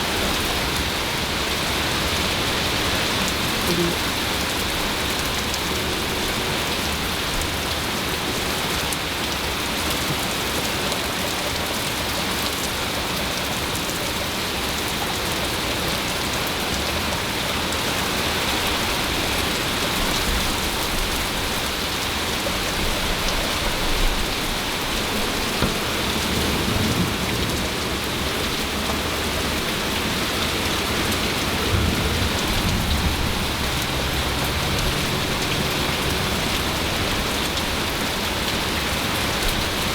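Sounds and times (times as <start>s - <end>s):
steady rain: 0.0s - 39.9s
low rumbles of thunder: 30.8s - 36.5s.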